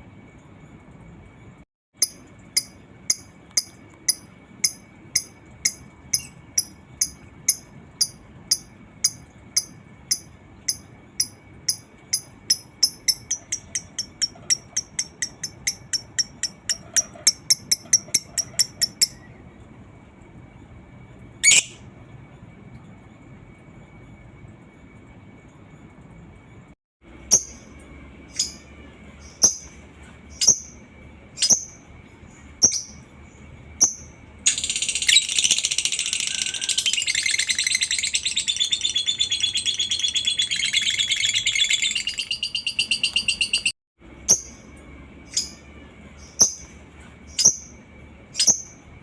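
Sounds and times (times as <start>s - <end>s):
lovebird chattering: 2.0s - 19.3s, 33.8s - 43.7s.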